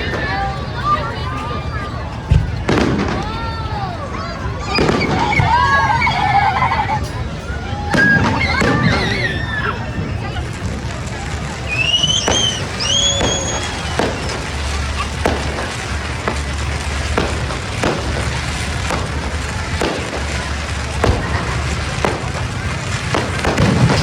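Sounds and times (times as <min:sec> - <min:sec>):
fireworks bangs: 0:00.0 - 0:24.0
firework whistle: 0:04.6 - 0:07.2, 0:07.8 - 0:24.0.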